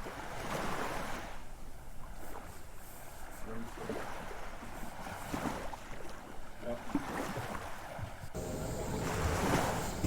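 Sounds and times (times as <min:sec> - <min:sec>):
water rushing along a hull: 0:00.0 - 0:10.0
wind buffeting microphone: 0:08.4 - 0:10.0.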